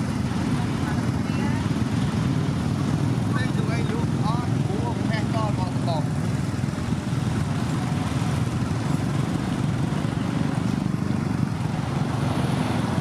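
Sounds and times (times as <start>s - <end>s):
heavy truck engine running: 0.0s - 13.0s.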